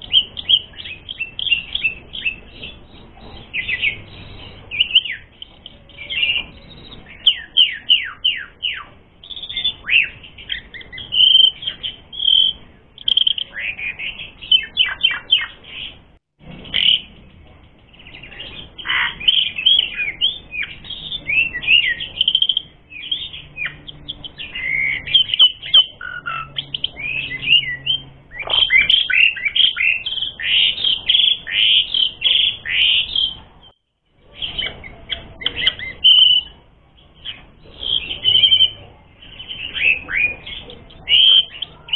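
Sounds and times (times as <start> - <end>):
starling singing high whistles: 34.4 - 36.6.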